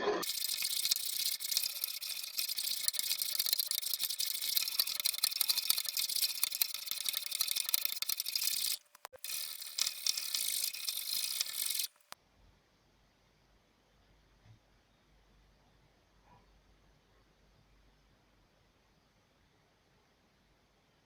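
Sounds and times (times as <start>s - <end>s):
hand tool rasping wood: 0.2s - 12.2s.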